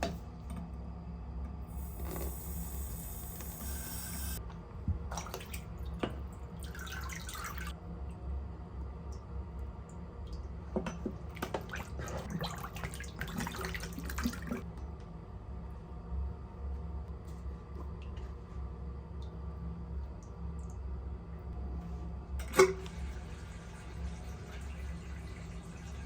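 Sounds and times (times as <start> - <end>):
steady low hum: 0.0 - 13.3
water dripping and splashing: 5.1 - 7.8, 9.9 - 14.6.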